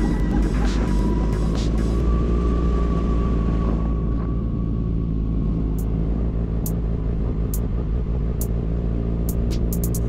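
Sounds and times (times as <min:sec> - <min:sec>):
motorcycle engine running steadily: 0:05.8 - 0:10.0.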